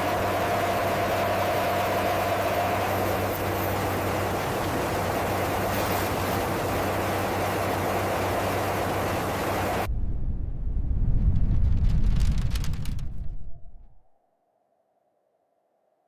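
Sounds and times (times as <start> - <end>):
deep rumble with crackle: 3.0 - 14.1.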